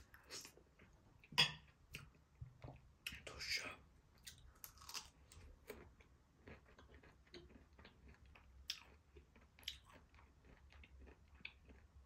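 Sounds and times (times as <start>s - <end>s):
person chewing food: 4.2s - 12.0s.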